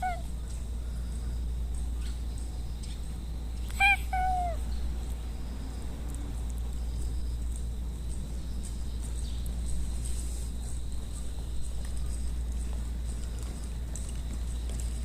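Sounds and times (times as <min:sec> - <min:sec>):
cat meowing: 0:00.0 - 0:00.3, 0:03.7 - 0:04.6.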